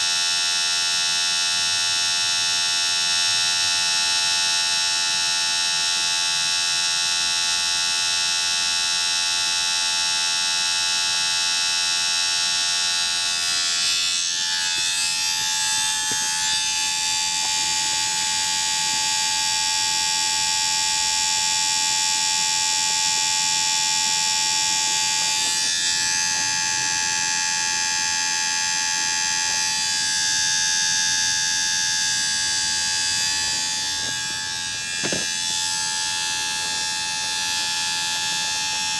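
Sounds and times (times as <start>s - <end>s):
electric motor whining: 12.6s - 38.9s.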